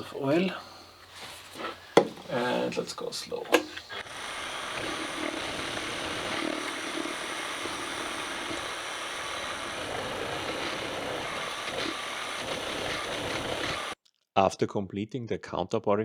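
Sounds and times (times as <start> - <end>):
milling machine whirring: 1.6 - 14.0.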